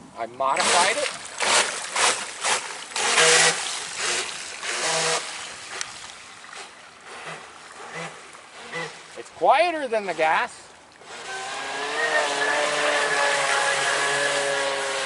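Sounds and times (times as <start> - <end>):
boat rushing and splashing water: 0.5 - 15.0
electric motor whine: 11.1 - 15.0.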